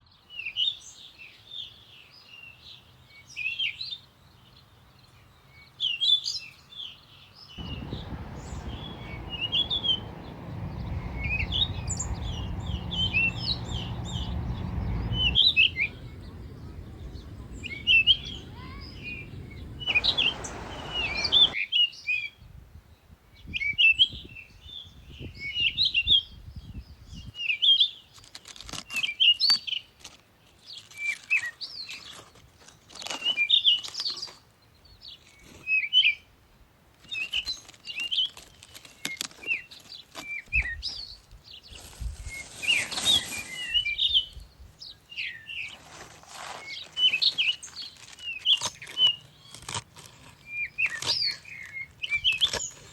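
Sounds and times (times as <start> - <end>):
songbirds chirping: 0.1 - 21.6
rustling: 41.7 - 43.9, 45.6 - 52.9.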